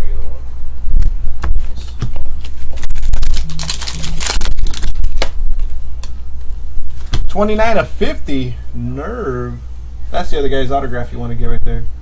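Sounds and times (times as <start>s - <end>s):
wrappers rustling: 2.4s - 5.4s.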